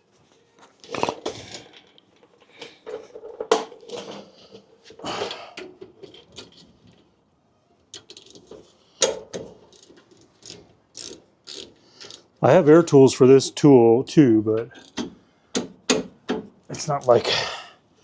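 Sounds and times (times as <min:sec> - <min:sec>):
ratchet wrench clicking: 0:09.7 - 0:12.2.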